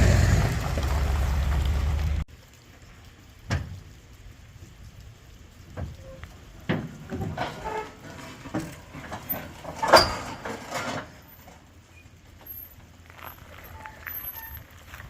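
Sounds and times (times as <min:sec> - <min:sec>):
knocks and clunks: 0:06.6 - 0:11.6.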